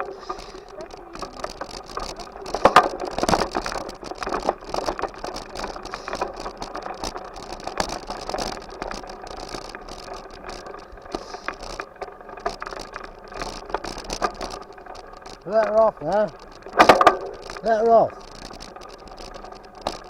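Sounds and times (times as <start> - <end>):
bicycle frame rattling: 0.0 - 20.0
steady rush of noise: 0.0 - 20.0.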